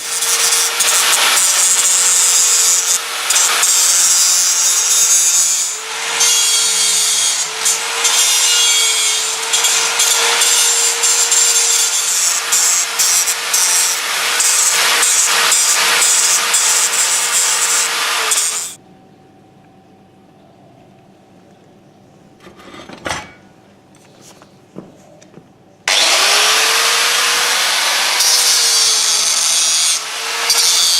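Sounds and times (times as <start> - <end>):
power grinder grinding steel: 0.0 - 18.8, 25.9 - 30.9.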